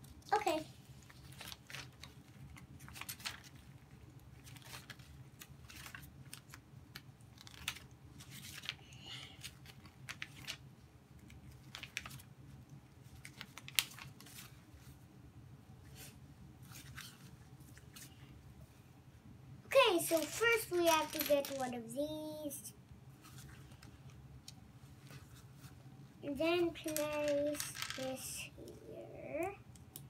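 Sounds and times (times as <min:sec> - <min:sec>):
plastic pieces clicking and rattling: 0:20.0 - 0:21.8, 0:26.7 - 0:28.4.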